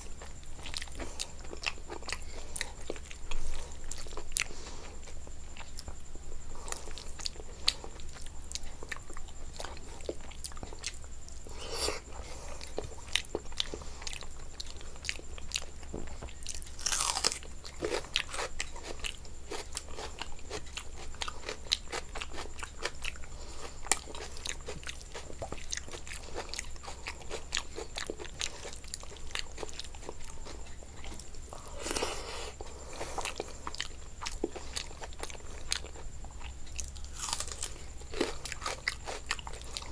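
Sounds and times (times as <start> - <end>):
crisp crunching chewing: 12.6 - 39.9.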